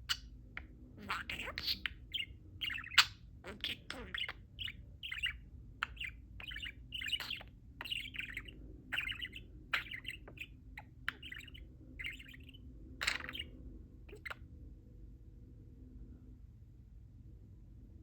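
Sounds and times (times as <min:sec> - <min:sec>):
budgerigar chattering and warbling: 0:01.0 - 0:13.5, 0:14.1 - 0:14.4.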